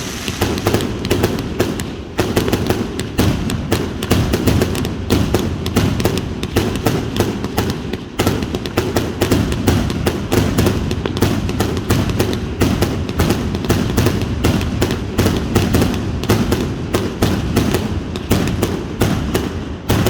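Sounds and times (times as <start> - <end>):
low rumble: 0.0 - 1.3
firework cake firing sharp cracks: 0.0 - 20.0.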